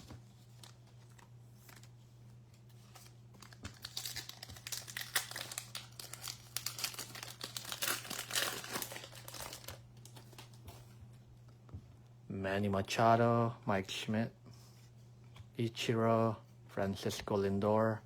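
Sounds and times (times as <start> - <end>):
wrapper tearing and crinkling: 2.9 - 10.6.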